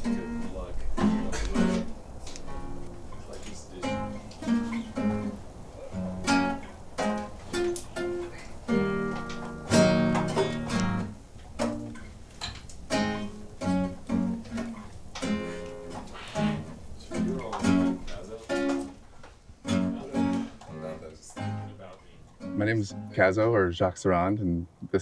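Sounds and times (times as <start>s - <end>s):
acoustic guitar music: 0.0s - 24.7s.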